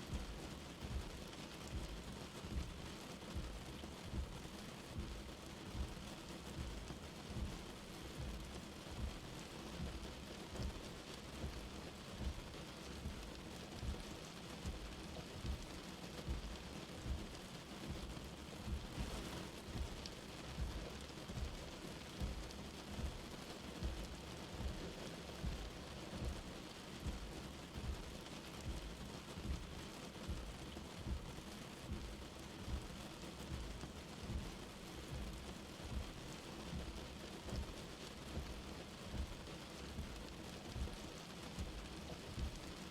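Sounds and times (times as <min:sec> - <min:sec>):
light rain pattering: 0:00.0 - 0:42.9
soft low thuds: 0:22.2 - 0:39.4.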